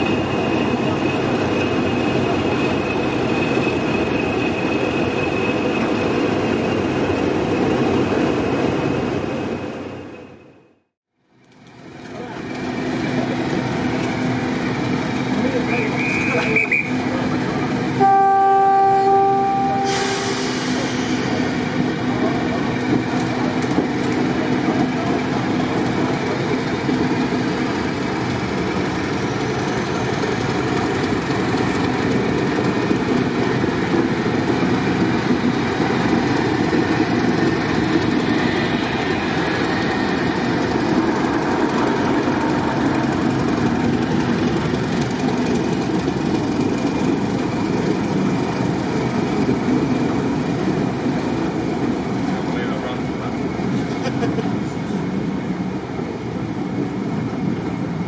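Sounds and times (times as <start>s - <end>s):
train rail noise: 0.0s - 58.0s
locomotive engine running: 11.7s - 58.0s
locomotive horn: 18.0s - 20.7s.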